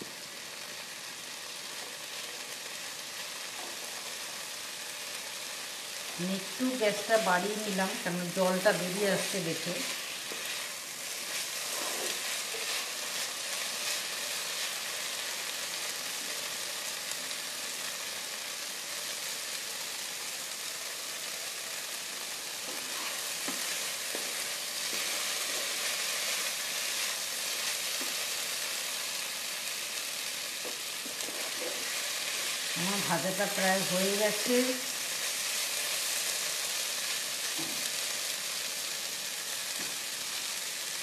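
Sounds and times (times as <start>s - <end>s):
beans sizzling in oil: 0.0s - 41.0s
spatula scraping: 9.9s - 14.7s, 22.6s - 28.1s, 31.0s - 32.4s.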